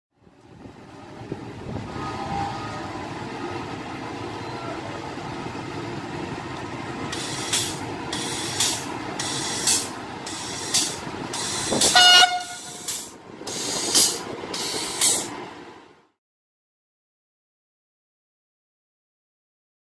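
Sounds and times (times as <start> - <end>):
train rumble: 0.2 - 16.2
wheels clattering over rail joints: 3.2 - 15.6
train horn: 11.8 - 12.9.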